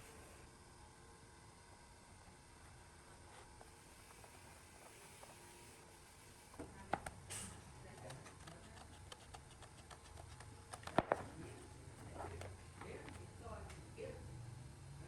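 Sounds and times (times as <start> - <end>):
faint room noise: 0.0 - 15.0
short hiss: 7.3 - 7.6.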